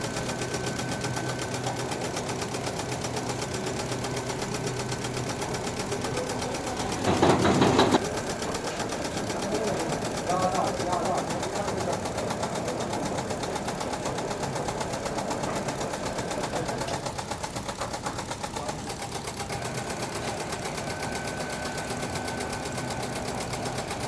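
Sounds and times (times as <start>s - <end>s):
factory machinery rattling: 0.0s - 24.0s.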